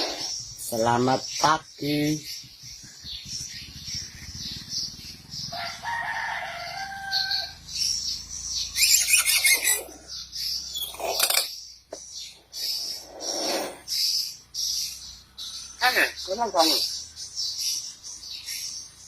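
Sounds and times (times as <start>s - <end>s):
loud noisy bird calls: 0.0s - 19.0s
bird crowing: 4.4s - 8.0s, 8.6s - 11.4s.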